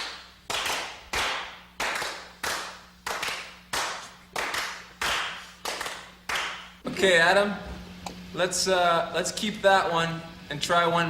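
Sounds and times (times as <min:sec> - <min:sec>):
sharp hand claps: 0:00.0 - 0:06.8.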